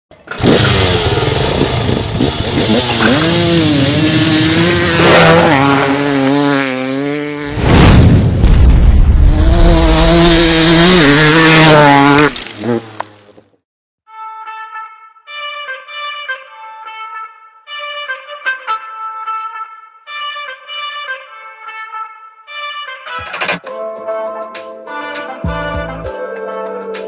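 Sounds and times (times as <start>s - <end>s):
dirt bike engines revving: 0.3s - 7.5s, 9.3s - 13.3s
loud rushing blast: 7.5s - 11.4s.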